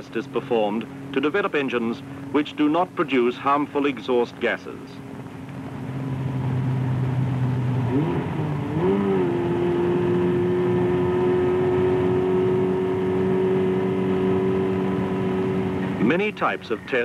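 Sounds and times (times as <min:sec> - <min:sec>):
engine revving: 0:05.0 - 0:17.0.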